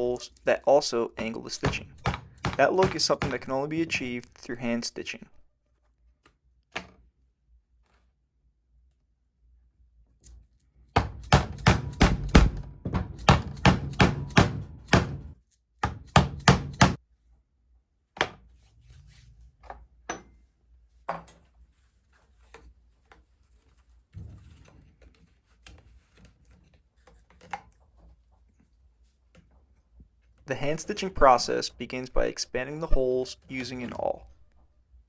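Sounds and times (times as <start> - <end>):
mallet knocking on punching iron: 1.6 - 3.5, 11.0 - 17.0.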